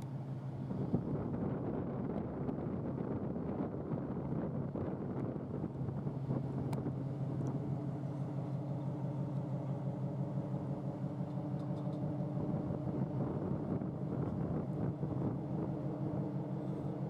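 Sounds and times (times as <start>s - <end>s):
ship engine drone: 5.3s - 17.0s.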